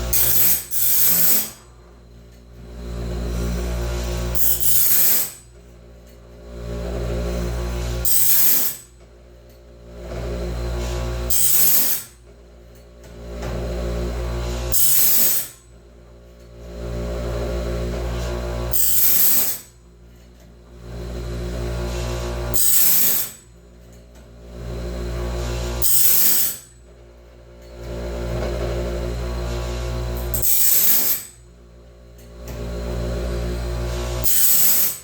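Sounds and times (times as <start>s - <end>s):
grinder hissing on blade teeth: 0.0s - 1.7s, 3.8s - 5.4s, 8.0s - 8.9s, 11.3s - 12.2s, 14.6s - 15.6s, 18.7s - 19.7s, 22.4s - 23.4s, 25.7s - 26.8s, 30.2s - 31.4s, 34.0s - 35.0s
grinder humming: 0.0s - 5.6s, 6.2s - 9.0s, 9.8s - 12.2s, 13.0s - 15.6s, 16.4s - 19.8s, 20.6s - 23.5s, 24.1s - 31.6s, 32.2s - 35.0s.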